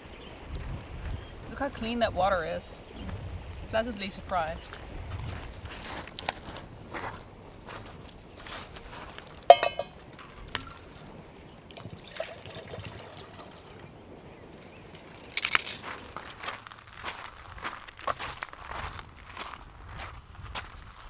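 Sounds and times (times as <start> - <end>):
cookware clattering: 9.5 - 10.8
metal cookware clinking: 9.5 - 10.8
water pouring: 11.7 - 14.0.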